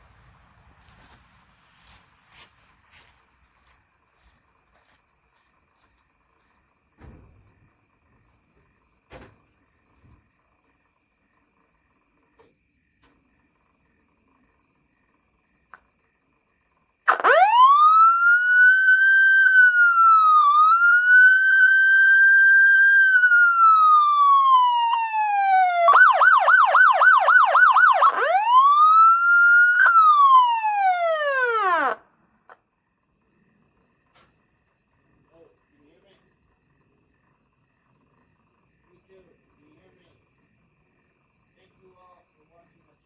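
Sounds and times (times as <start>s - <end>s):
fire truck siren wailing and yelping: 17.1s - 32.0s.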